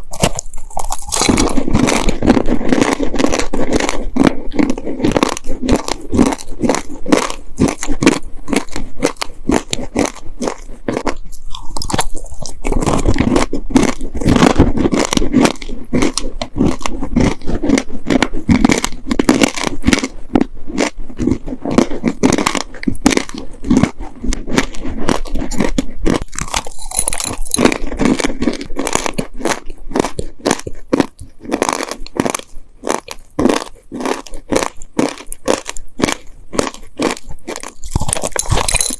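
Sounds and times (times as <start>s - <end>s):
chewing crunchy cookies: 0.0s - 38.9s.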